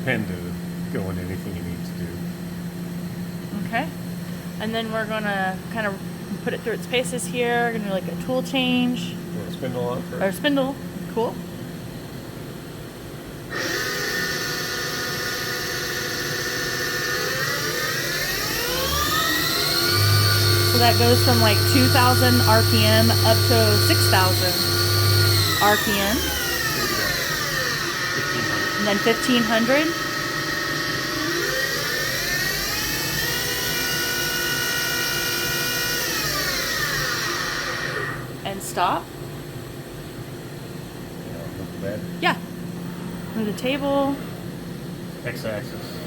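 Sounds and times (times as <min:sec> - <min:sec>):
machine spindle whine rising in pitch: 0:13.5 - 0:38.4.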